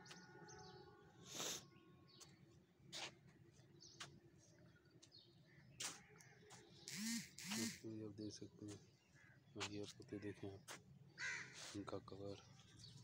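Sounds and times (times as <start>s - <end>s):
short bird calls: 5.8s - 8.0s.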